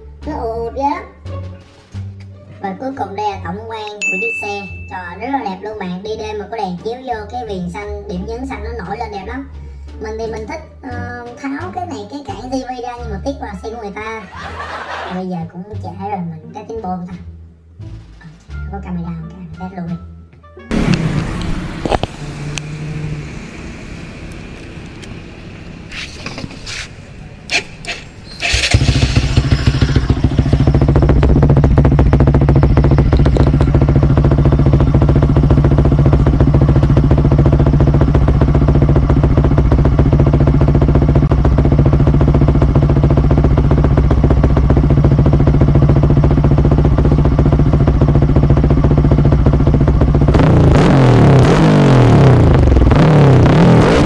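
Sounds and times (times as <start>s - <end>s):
motorcycle engine starting and idling: 20.7s - 54.0s.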